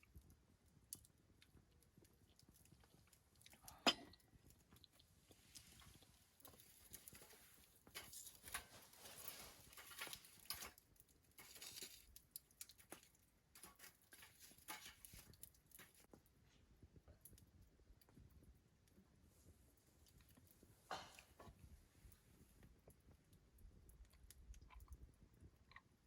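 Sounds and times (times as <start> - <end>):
faint rustling and scratching: 4.7 - 17.5.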